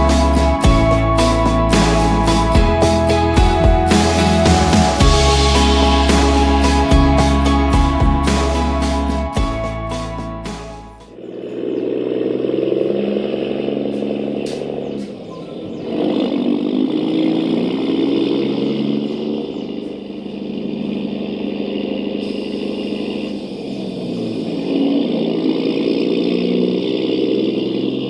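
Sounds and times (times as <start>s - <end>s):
rc truck motor buzzing: 11.1s - 28.0s.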